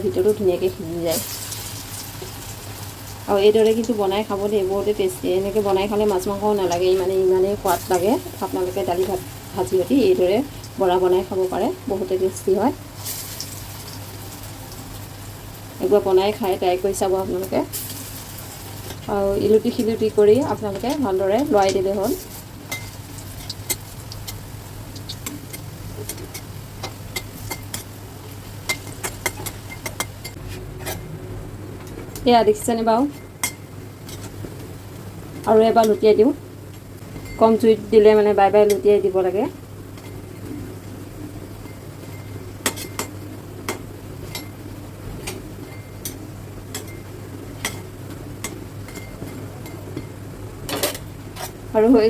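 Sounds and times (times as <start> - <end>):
faint oil sizzle: 0.0 - 30.4.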